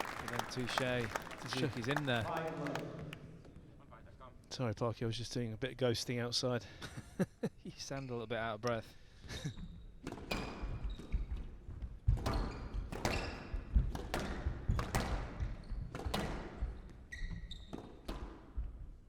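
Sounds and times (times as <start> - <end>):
squash ball hits: 12.1 - 17.0, 17.6 - 18.8
shoe squeaks on court floor: 12.2 - 13.6, 14.8 - 18.3.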